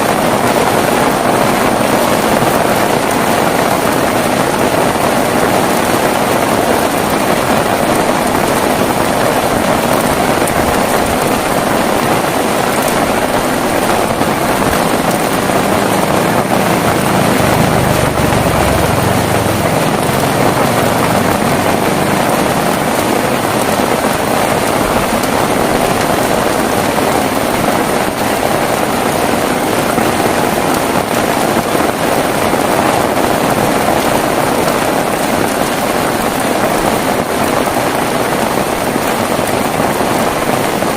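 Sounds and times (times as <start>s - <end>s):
heavy rain hissing: 0.0s - 40.9s
low rumble: 13.0s - 26.3s.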